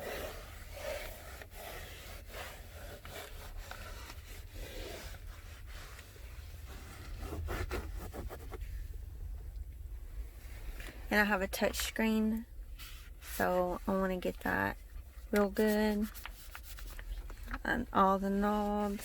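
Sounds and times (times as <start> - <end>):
wipe rubbing on door trim: 0.0 - 8.8.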